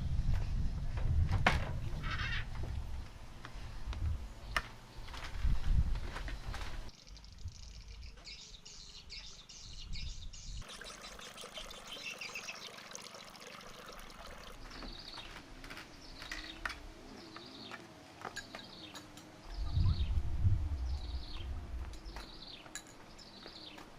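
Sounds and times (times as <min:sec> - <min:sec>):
birds chirping: 0:06.2 - 0:23.9.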